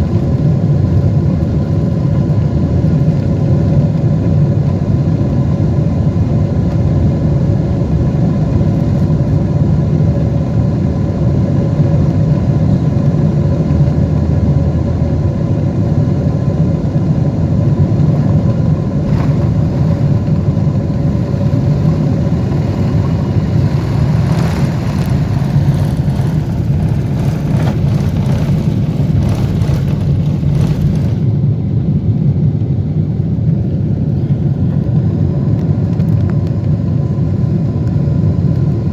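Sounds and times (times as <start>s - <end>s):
aircraft cabin engine rumble: 0.0s - 38.9s
light rattles: 19.0s - 31.3s.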